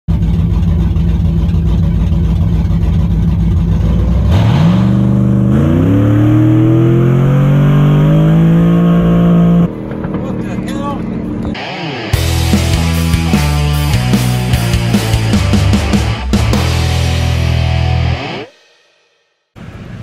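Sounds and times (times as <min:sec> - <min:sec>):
drag racing engine revving: 0:00.1 - 0:18.5.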